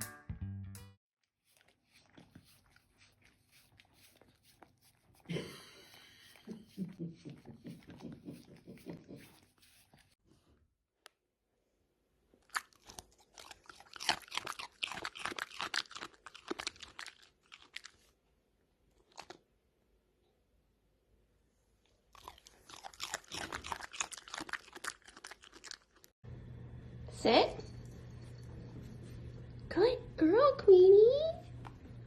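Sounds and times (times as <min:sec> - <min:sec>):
dog chewing food: 0:01.4 - 0:05.3, 0:12.5 - 0:18.1, 0:22.1 - 0:26.1.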